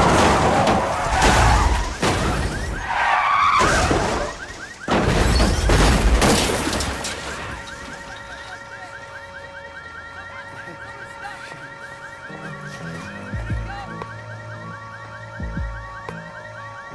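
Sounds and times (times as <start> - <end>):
car crash impacts: 0.0 - 8.6
car alarm chirps: 0.0 - 16.9
glass breaking: 3.6 - 8.4.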